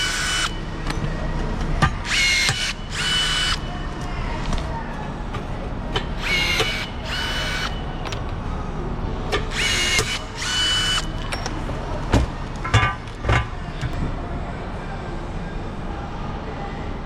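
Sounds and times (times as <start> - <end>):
power tool whirring: 0.0 - 0.7, 2.0 - 3.6, 6.2 - 8.3, 9.5 - 11.4.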